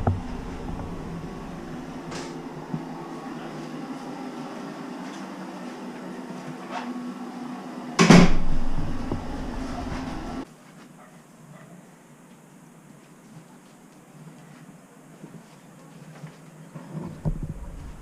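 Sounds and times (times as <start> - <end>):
steady background hum: 0.0 - 10.7
door banging shut: 8.0 - 10.1.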